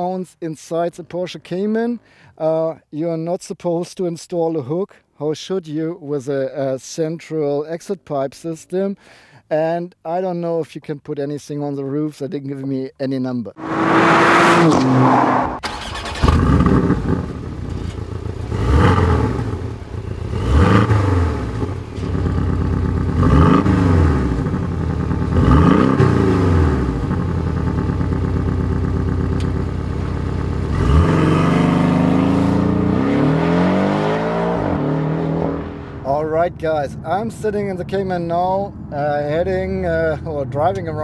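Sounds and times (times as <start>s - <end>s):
car engine accelerating: 13.6s - 37.2s.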